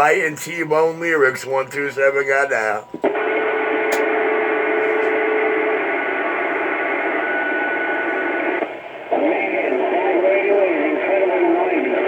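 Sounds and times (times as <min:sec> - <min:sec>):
distorted radio voice: 0:00.0 - 0:03.1, 0:08.4 - 0:12.0
radio static: 0:00.0 - 0:12.0.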